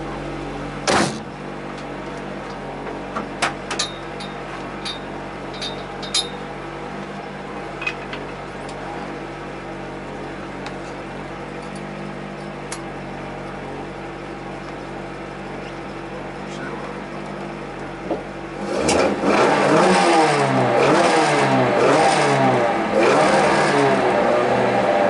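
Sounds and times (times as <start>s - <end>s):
car engine idling: 0.0s - 19.7s.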